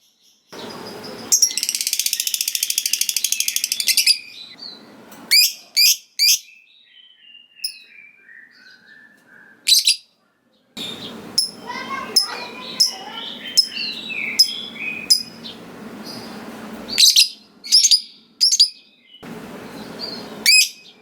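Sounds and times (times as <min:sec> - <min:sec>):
sharp bird chirps: 0:00.5 - 0:09.1, 0:10.8 - 0:21.0
lovebird chattering trill: 0:00.6 - 0:04.7, 0:10.8 - 0:18.8.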